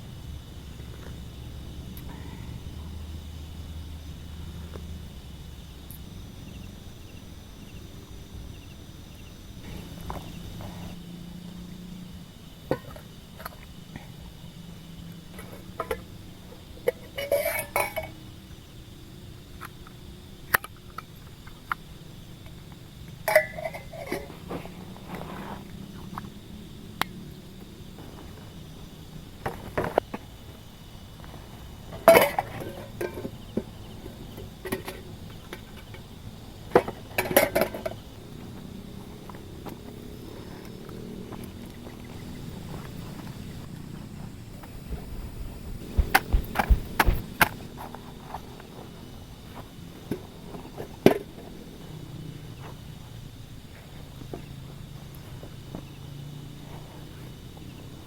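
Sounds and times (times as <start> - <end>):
faint low hum: 0.0 - 57.4
cookware clinking and knocking: 23.3 - 24.0.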